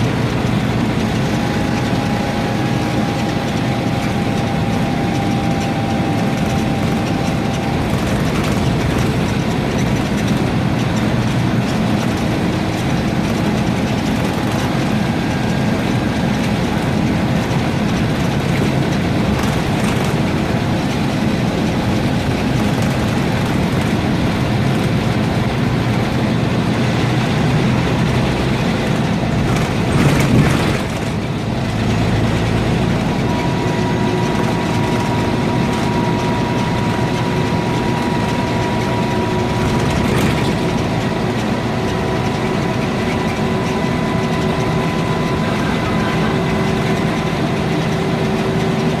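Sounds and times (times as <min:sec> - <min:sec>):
bus body rattle: 0:00.0 - 0:49.0
bus diesel engine running: 0:00.0 - 0:49.0
bus jolt: 0:00.0 - 0:49.0
road noise: 0:00.0 - 0:49.0.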